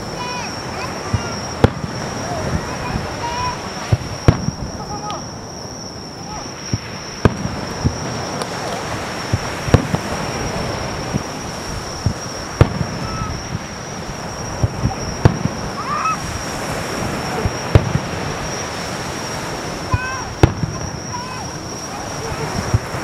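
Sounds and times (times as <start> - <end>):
background hiss: 0.0 - 23.0
firework shells bursting: 0.0 - 23.0
thin high tone: 0.0 - 23.0.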